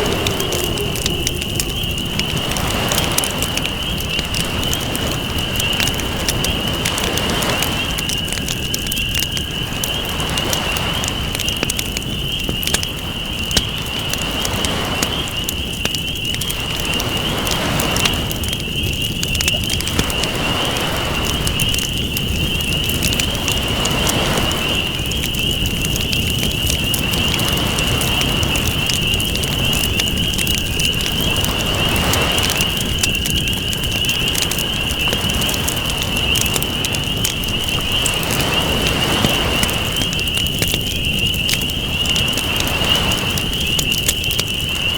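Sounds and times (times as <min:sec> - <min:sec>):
high-pitched drone: 0:00.0 - 0:04.0
ocean waves washing: 0:00.0 - 0:08.4, 0:31.2 - 0:44.9
campfire crackling: 0:00.0 - 0:44.9.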